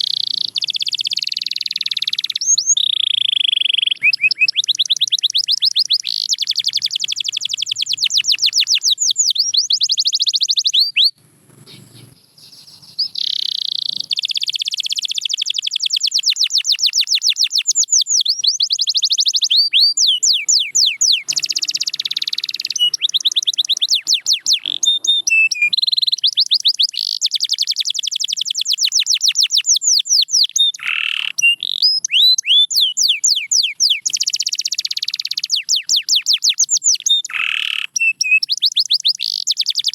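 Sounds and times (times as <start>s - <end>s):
canary singing fast trills: 0.0s - 39.9s.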